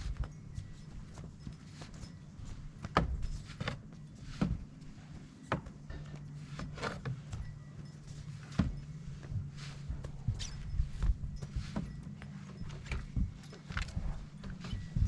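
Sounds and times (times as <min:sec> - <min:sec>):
steady low hum: 0:00.0 - 0:15.0
footsteps crunching through snow: 0:08.2 - 0:15.0.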